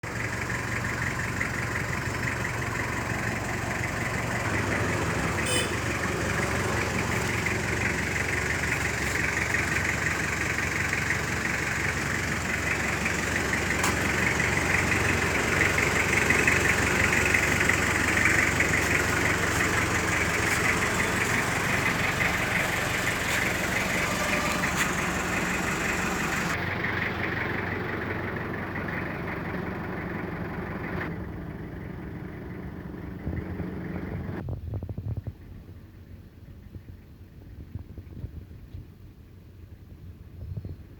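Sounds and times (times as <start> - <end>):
diesel engine idling: 0.0 - 34.4.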